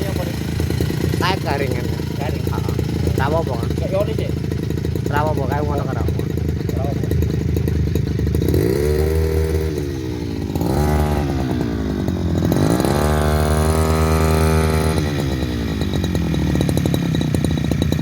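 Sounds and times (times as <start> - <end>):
brush cutter engine revving: 0.0 - 18.0.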